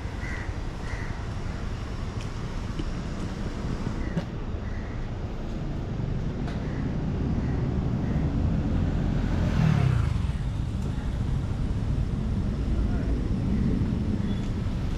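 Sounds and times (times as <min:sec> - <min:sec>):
road traffic rumble: 0:00.0 - 0:14.9
vehicle passing close: 0:07.0 - 0:10.8.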